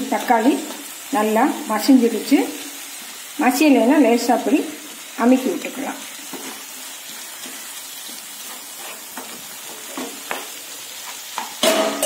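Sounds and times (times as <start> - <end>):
food sizzling in a pan: 0.0 - 12.0
wooden spatula scraping: 6.3 - 11.3.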